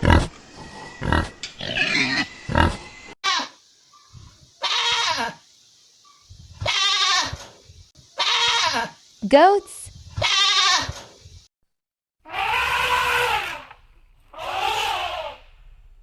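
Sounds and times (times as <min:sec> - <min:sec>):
pig grunting: 0:00.0 - 0:02.9
goat bleating: 0:04.6 - 0:05.4, 0:06.6 - 0:07.4, 0:08.2 - 0:08.9, 0:10.2 - 0:11.0.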